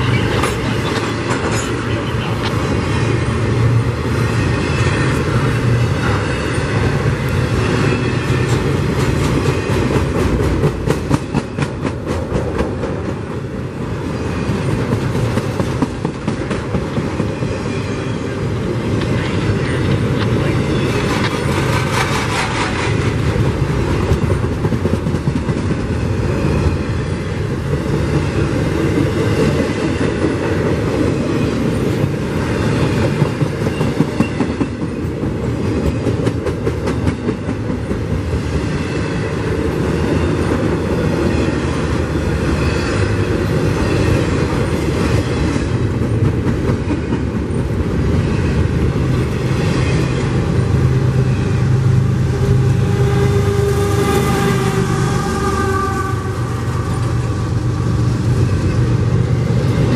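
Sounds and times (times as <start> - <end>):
wheels clacking over rail joints: 0.0 - 3.2
freight train rumbling past: 0.0 - 59.9.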